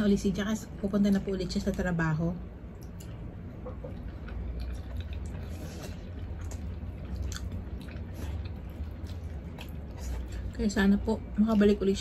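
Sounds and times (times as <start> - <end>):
steady low hum: 0.0 - 12.0
people chewing: 2.8 - 12.0.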